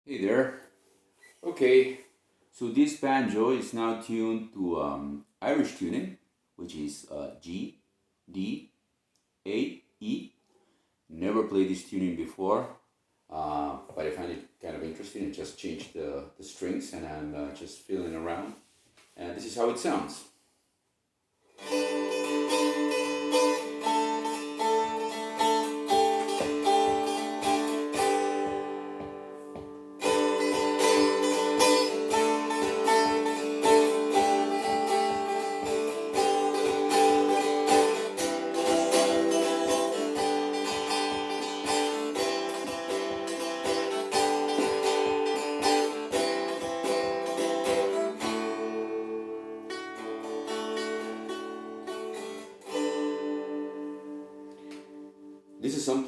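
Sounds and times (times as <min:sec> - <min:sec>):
tin-can banjo picked melody: 0:21.5 - 0:56.0.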